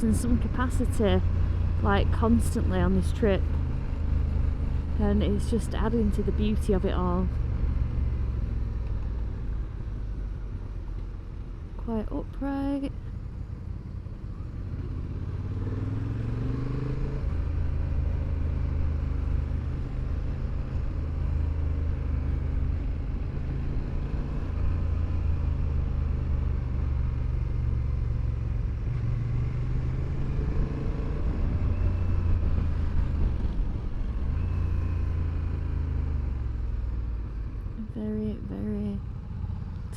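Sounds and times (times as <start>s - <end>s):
motorcycle engine revving: 13.7s - 39.9s.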